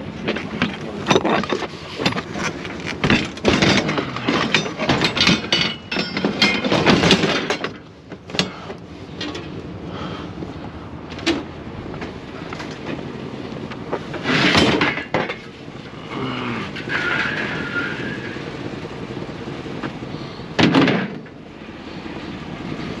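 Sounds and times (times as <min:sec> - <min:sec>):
junk clattering and knocking: 0:00.2 - 0:09.6, 0:11.1 - 0:15.6, 0:20.6 - 0:21.4.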